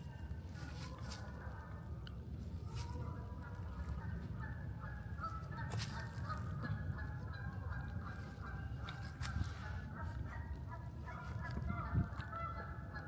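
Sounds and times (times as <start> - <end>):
flock of birds honking: 2.6 - 13.0.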